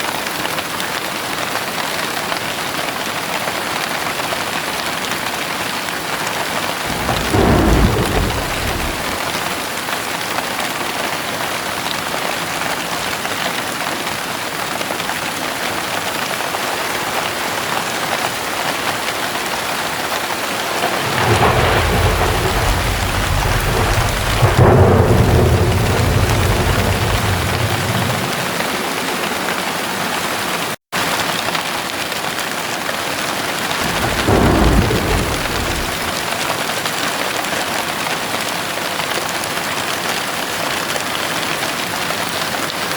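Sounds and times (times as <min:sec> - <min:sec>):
heavy rain: 0:00.0 - 0:42.9
thunder rumbling: 0:06.7 - 0:09.9, 0:19.0 - 0:30.2, 0:33.7 - 0:36.9.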